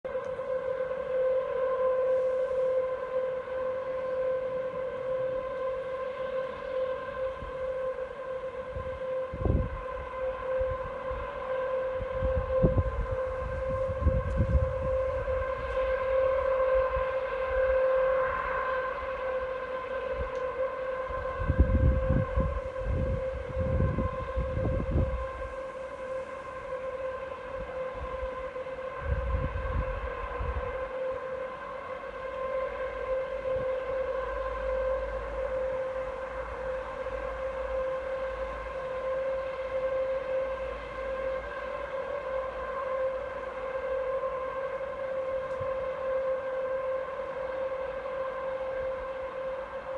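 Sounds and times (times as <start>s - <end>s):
steady hum from the sky: 0.1s - 49.9s
wind buffeting microphone: 8.7s - 11.1s, 11.9s - 16.1s, 21.1s - 25.6s, 29.0s - 30.8s.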